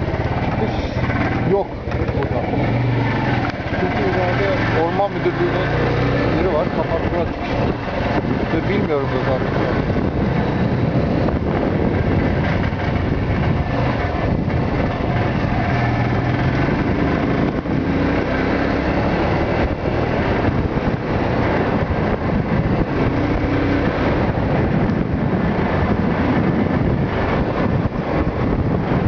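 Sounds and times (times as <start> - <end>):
motorcycle engine running: 0.0 - 29.0
wind rushing over microphone: 0.0 - 29.0.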